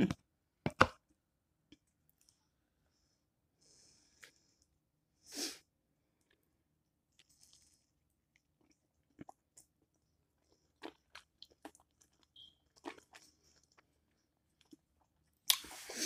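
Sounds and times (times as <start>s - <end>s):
chewing with mouth clicks: 7.1s - 15.7s
faint chewing crunches: 7.1s - 15.9s.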